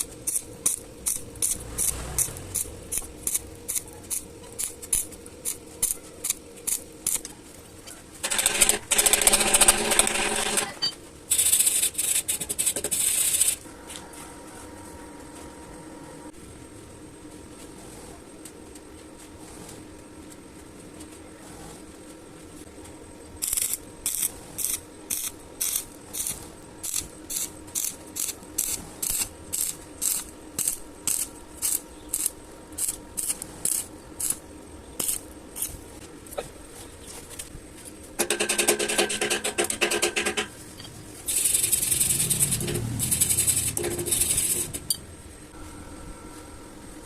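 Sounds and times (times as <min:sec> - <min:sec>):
welding arc on metal: 0:00.0 - 0:07.3, 0:08.2 - 0:13.6, 0:23.4 - 0:35.8, 0:41.2 - 0:45.0.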